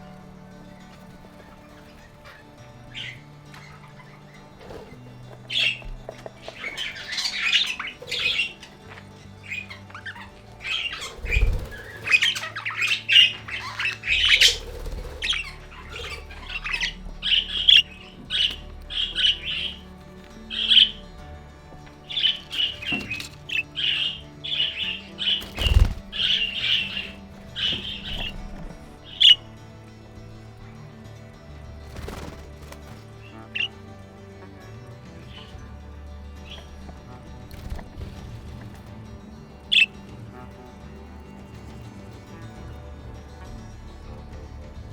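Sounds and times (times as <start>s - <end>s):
budgies chattering and squawking: 0.0s - 44.9s
quiet background music: 0.0s - 44.9s.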